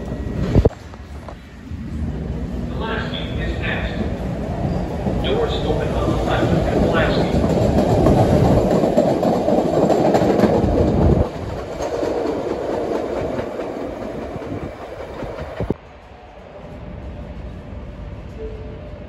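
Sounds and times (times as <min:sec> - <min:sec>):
train passing: 0:00.0 - 0:19.0
wheels clattering over rail joints: 0:05.1 - 0:15.8.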